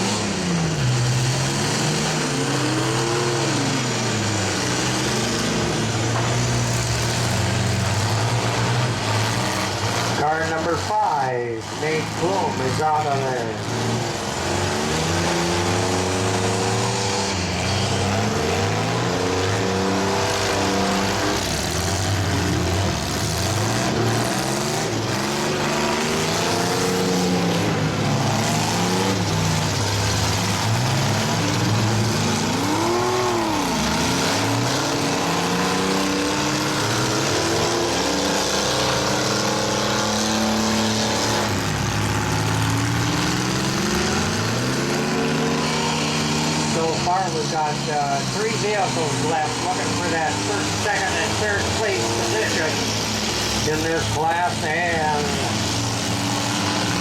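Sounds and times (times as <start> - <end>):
small engines revving: 0.0 - 57.0.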